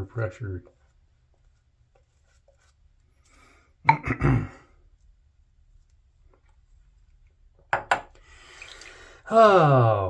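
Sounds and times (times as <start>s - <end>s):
man clearing his throat: 3.9s - 4.7s.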